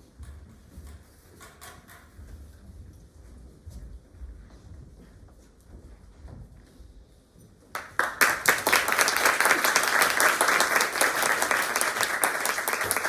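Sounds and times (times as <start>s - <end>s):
audience applause: 7.8s - 13.0s.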